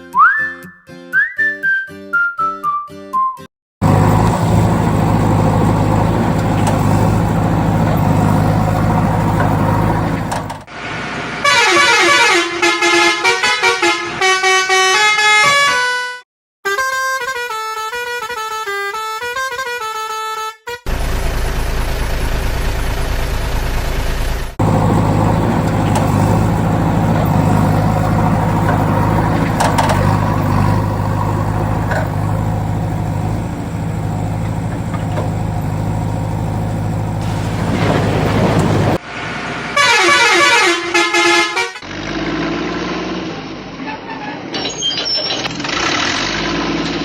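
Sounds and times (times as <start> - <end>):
vehicle engine humming: 3.8 - 10.9, 20.9 - 39.8
musical horn tune: 39.8 - 41.8.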